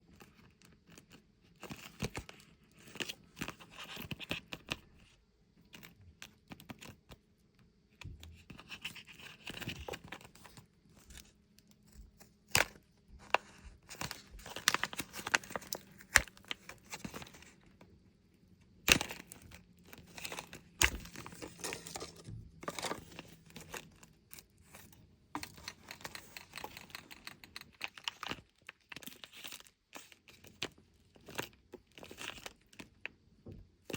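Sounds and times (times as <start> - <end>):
packaging crinkling and tearing: 12.5 - 17.6, 18.9 - 24.8.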